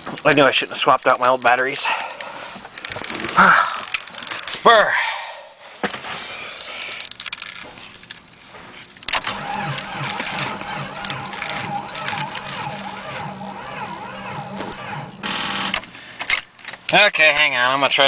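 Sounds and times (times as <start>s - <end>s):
car engine cranking slowly: 9.0s - 16.2s.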